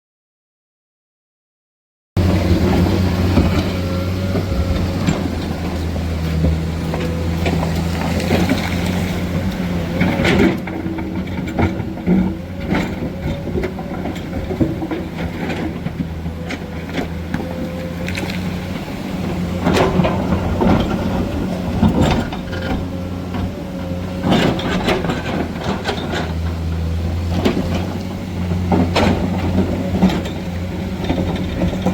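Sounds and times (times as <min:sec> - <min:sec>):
excavator diesel engine: 0:02.2 - 0:31.9
metal clanks and knocks: 0:19.3 - 0:31.9.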